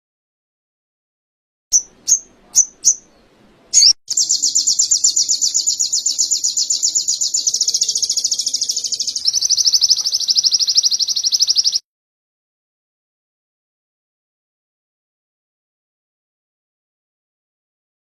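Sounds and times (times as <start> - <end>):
bird singing high trills: 1.7 - 11.8.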